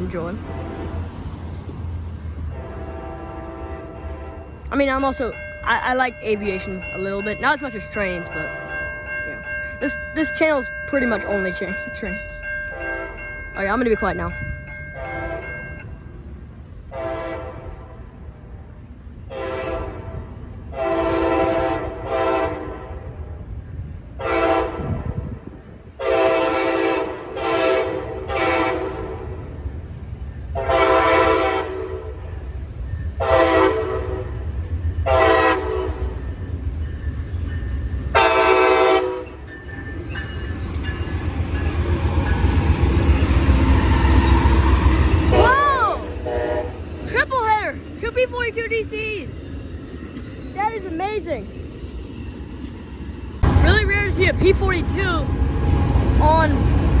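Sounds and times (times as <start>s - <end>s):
train rumbling: 0.0s - 57.0s
train horn blasts: 2.5s - 4.7s, 12.7s - 13.2s, 15.0s - 15.6s, 16.9s - 18.2s, 19.3s - 23.3s, 24.2s - 25.4s, 26.0s - 29.5s, 30.5s - 32.2s, 33.2s - 34.4s, 35.0s - 36.2s, 38.1s - 39.4s, 43.7s - 47.3s.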